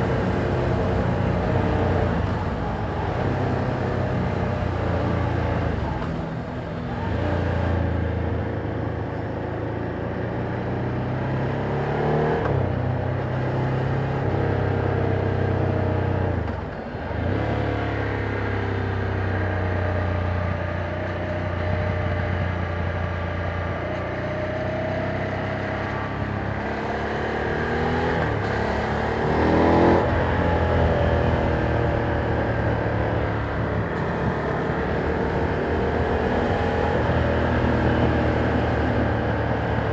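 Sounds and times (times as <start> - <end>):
motorcycle engine revving: 16.4 - 39.9.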